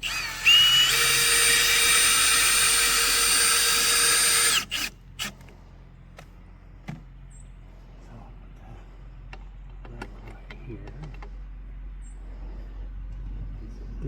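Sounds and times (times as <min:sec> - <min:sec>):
power drill driving screw: 0:00.0 - 0:05.4.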